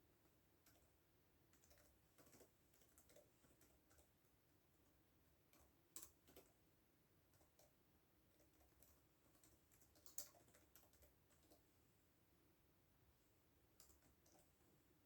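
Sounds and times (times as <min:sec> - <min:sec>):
keyboard typing: 0:00.6 - 0:00.9, 0:01.5 - 0:04.2, 0:07.3 - 0:11.7, 0:13.8 - 0:14.6.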